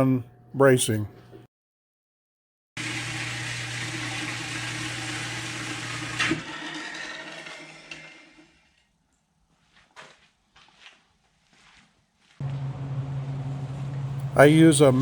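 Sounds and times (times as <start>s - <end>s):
power tool humming: 2.8s - 8.8s.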